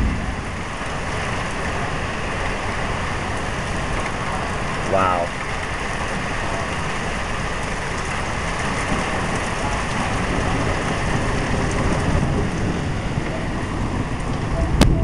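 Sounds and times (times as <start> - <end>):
low surge: 0.0 - 3.2
heavy rain pouring: 0.0 - 15.0.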